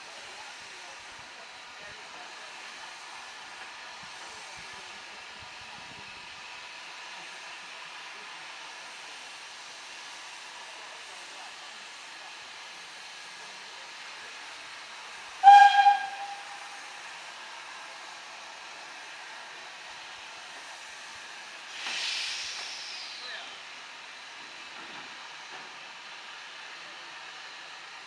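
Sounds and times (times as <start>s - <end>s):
steam locomotive hissing: 0.0s - 28.0s
steam whistle blast: 15.4s - 17.0s.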